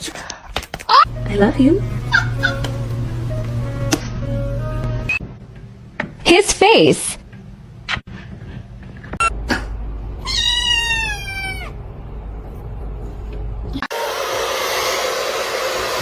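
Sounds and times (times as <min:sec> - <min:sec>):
cat meowing: 0:10.2 - 0:11.8.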